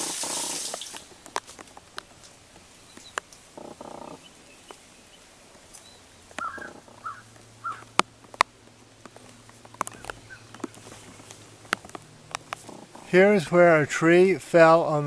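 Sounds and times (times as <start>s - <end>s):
wild birds calling: 0.0s - 13.8s
scattered sharp taps: 6.3s - 13.1s.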